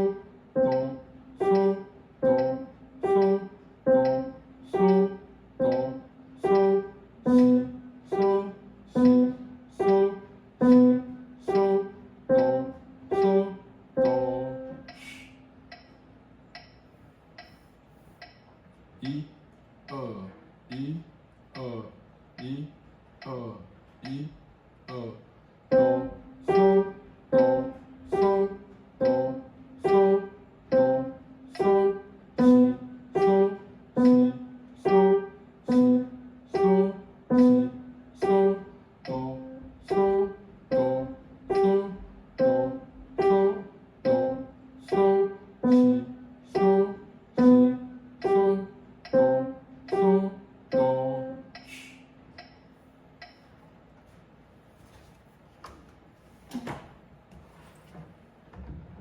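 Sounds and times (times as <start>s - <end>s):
slow piano notes and chords: 0.0s - 15.9s, 25.7s - 51.6s
steady held tone: 0.0s - 17.6s, 25.7s - 53.4s.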